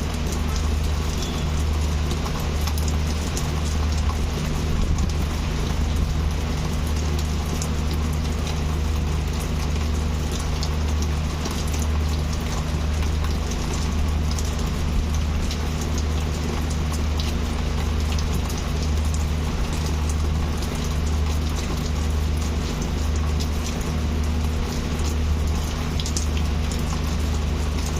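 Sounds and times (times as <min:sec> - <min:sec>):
heavy rain falling: 0:00.0 - 0:27.9.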